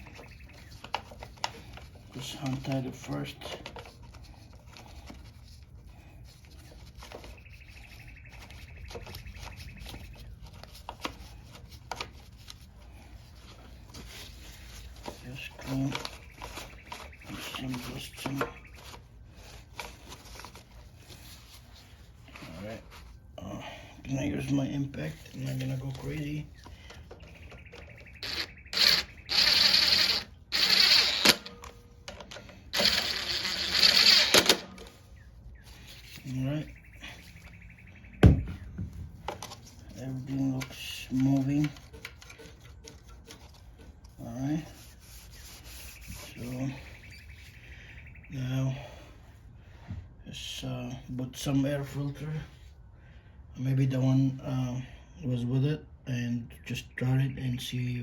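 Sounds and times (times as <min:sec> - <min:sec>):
bird trilling: 0:27.2 - 0:31.2
impact tool bursts: 0:28.2 - 0:34.9
clicks and knocks of parts handled: 0:31.1 - 0:35.0, 0:38.7 - 0:39.9.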